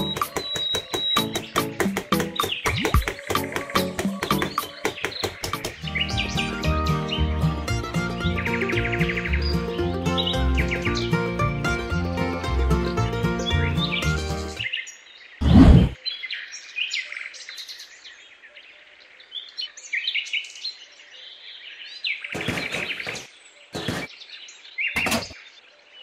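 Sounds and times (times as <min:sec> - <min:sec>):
small birds chirping: 0:00.0 - 0:11.6.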